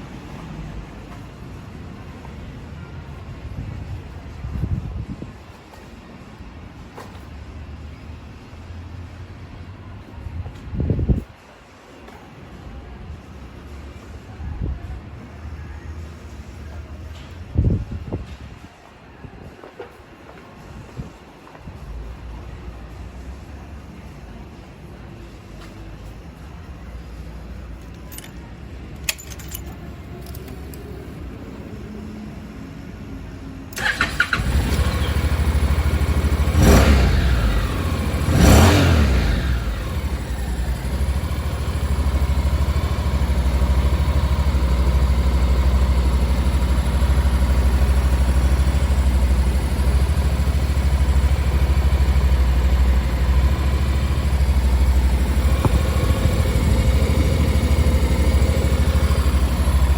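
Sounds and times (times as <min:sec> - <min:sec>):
motorcycle engine revving and idling: 0:33.7 - 0:59.9.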